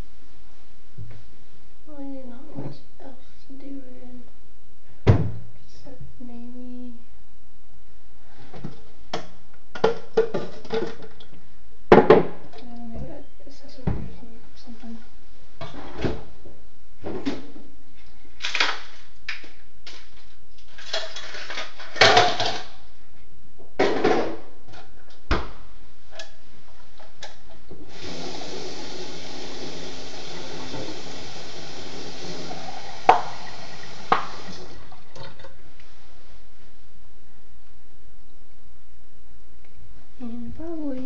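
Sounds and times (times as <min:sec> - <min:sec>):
water pouring: 0:27.8 - 0:35.6.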